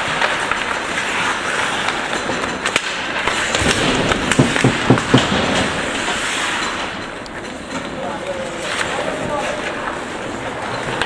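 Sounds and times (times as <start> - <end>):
hockey sticks and puck clacking: 0.0 - 11.0
skate blades scraping ice: 0.0 - 11.0
low thumps: 3.6 - 5.9.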